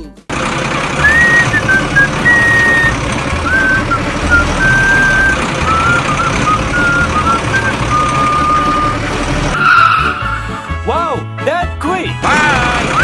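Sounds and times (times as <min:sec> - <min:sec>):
mechanical motor rumble: 0:00.6 - 0:09.6.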